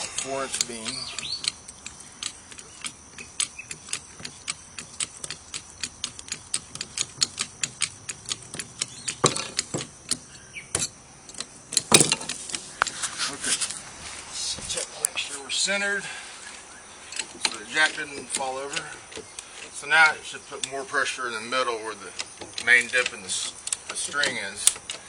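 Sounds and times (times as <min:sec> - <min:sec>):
rapid even ticking: 0:00.0 - 0:13.0, 0:14.8 - 0:25.0
loud clunk: 0:11.7 - 0:12.4.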